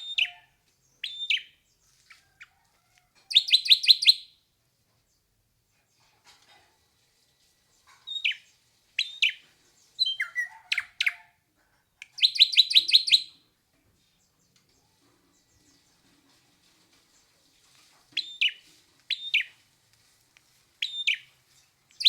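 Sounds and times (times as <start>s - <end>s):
bird whistled calls: 10.0s - 11.2s, 12.2s - 13.3s, 18.2s - 19.5s.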